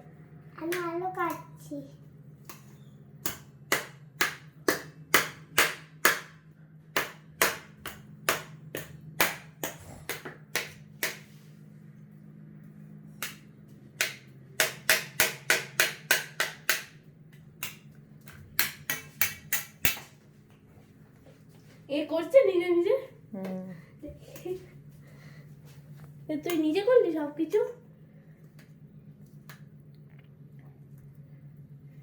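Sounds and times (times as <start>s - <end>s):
knife chopping potatoes: 2.4s - 11.4s, 13.1s - 20.2s.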